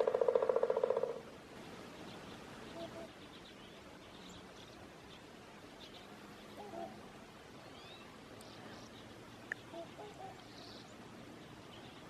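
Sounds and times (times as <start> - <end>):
small birds chirping: 0.0 - 12.0
distant swans honking: 2.7 - 3.1, 6.4 - 7.2, 9.6 - 10.6.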